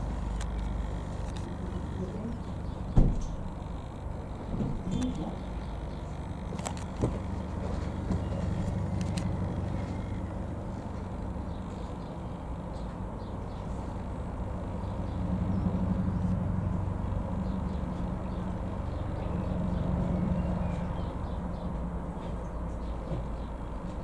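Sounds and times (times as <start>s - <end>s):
helicopter flying by: 0.0s - 21.8s
sharp knock: 3.0s - 3.4s.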